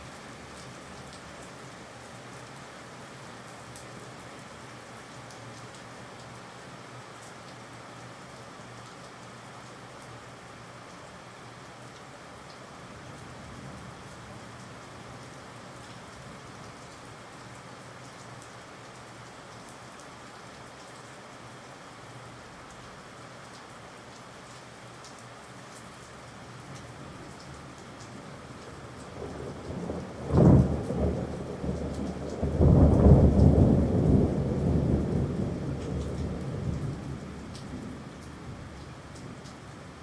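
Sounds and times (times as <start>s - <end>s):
rain hiss: 0.0s - 40.0s
thunder crack and rumble: 29.2s - 38.7s.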